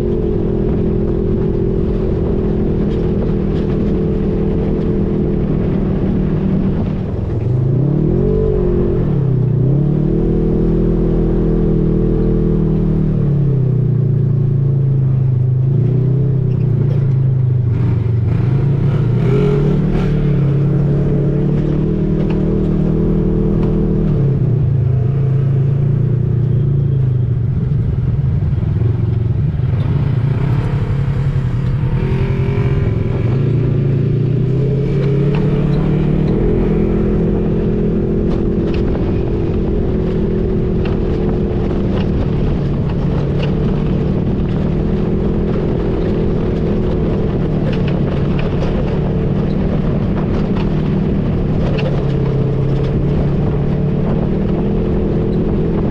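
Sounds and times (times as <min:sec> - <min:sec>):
utility vehicle engine running: 0:00.0 - 0:55.9.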